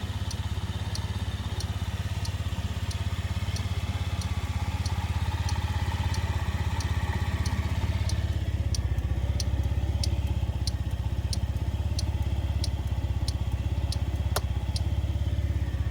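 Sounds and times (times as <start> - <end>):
light ticking: 0.0 - 15.9
scooter engine idling: 0.0 - 15.9
sharp click: 12.7 - 14.9.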